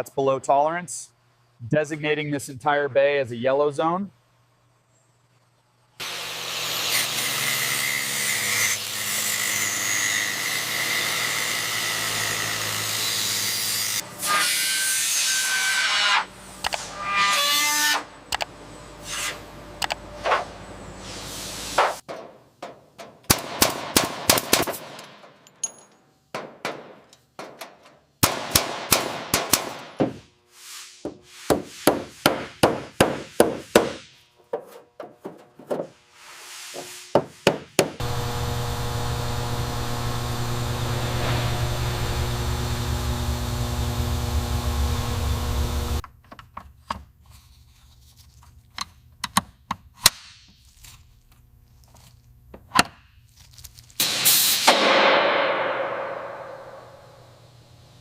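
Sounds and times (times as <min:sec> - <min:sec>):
machine humming: 0:38.0 - 0:46.0.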